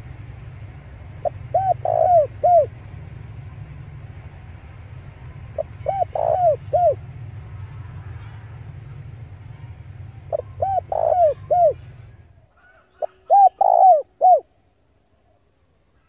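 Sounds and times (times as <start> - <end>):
dove cooing: 1.1 - 3.6, 5.2 - 7.1, 9.6 - 14.5.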